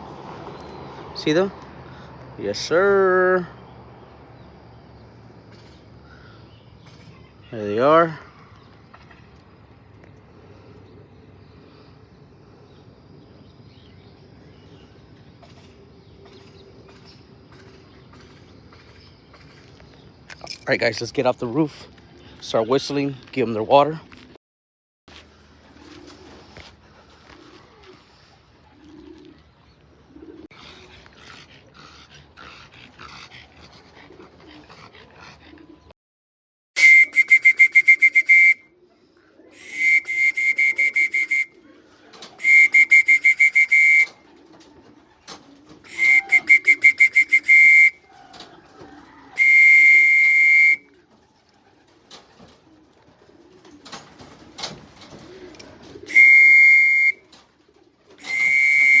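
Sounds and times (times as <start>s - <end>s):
pigeons cooing: 10.0s - 19.8s, 25.5s - 35.9s, 38.2s - 59.0s
pea whistle trilling blasts: 36.8s - 38.6s, 39.6s - 41.5s, 42.4s - 44.1s, 45.9s - 48.0s, 49.4s - 50.8s, 56.1s - 57.2s, 58.2s - 59.0s.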